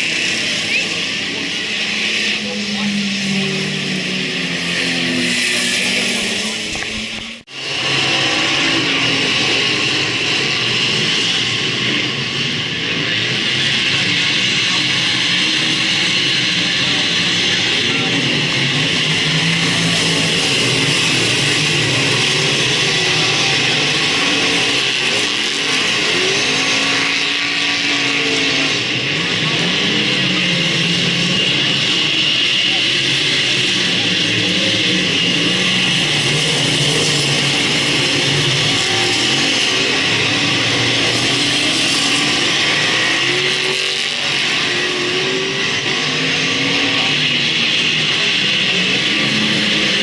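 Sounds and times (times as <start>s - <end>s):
race car engines: 0.0s - 50.0s.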